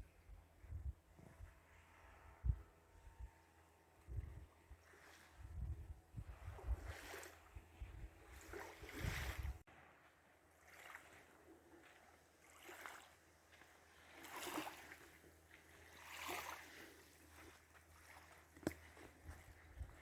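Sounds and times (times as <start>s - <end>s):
soft water splashes: 4.1s - 20.0s.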